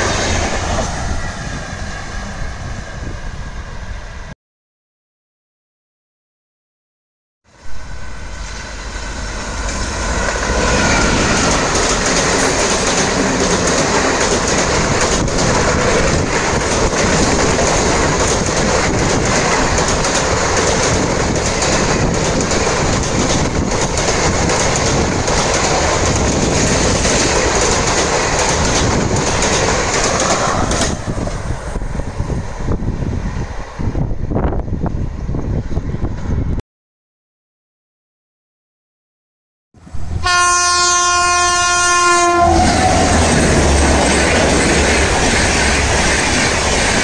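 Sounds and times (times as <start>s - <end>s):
train wheels rushing on rail: 0.0s - 4.3s, 7.6s - 36.6s, 39.9s - 47.0s
wind noise on microphone: 0.0s - 4.3s, 9.1s - 36.6s.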